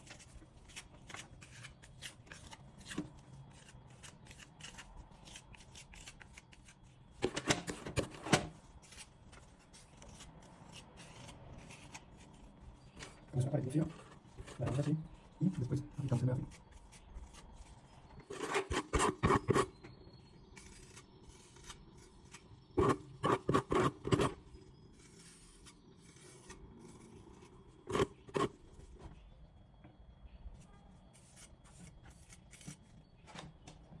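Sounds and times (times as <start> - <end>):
tool scraping plastered wall: 18.2 - 19.8, 22.8 - 24.4, 25.0 - 28.6.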